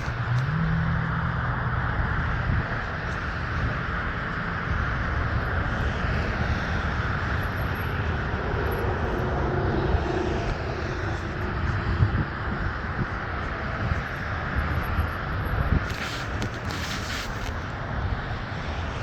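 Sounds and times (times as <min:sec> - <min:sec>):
jet aircraft passing overhead: 0:00.0 - 0:15.8
jet engine whine: 0:00.0 - 0:19.0.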